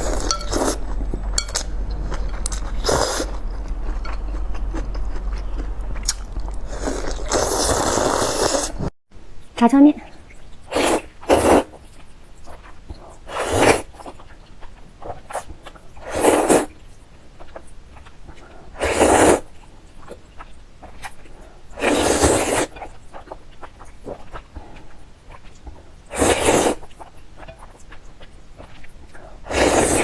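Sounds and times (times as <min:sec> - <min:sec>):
soft chewing: 0:00.0 - 0:08.5, 0:11.7 - 0:18.8, 0:22.7 - 0:26.1, 0:26.8 - 0:29.8
noodles slurped loudly: 0:06.8 - 0:08.8, 0:29.5 - 0:30.0.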